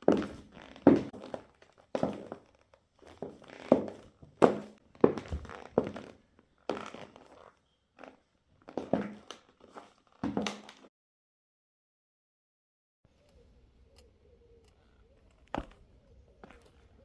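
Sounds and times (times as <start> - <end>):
high heel footsteps: 0.0 - 7.4, 8.0 - 10.9.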